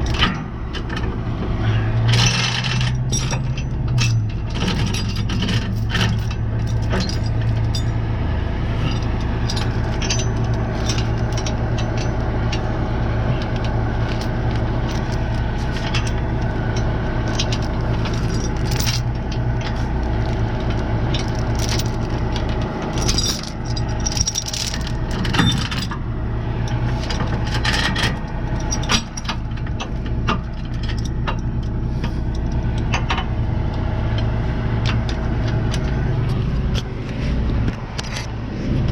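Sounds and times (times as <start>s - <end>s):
tow chains clinking: 0.0s - 1.1s, 2.0s - 8.2s, 8.8s - 37.0s
truck engine idling: 0.0s - 38.9s.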